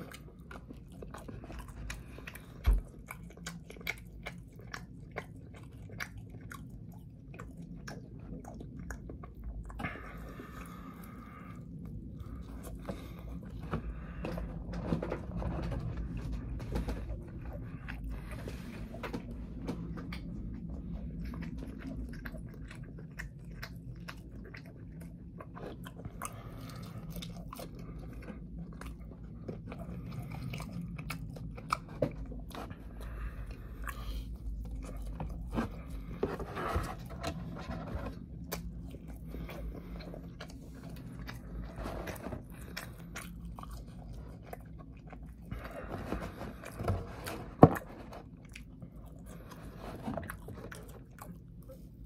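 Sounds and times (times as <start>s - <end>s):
low steady hum: 0.0s - 52.0s
person chewing and biting: 0.0s - 52.0s.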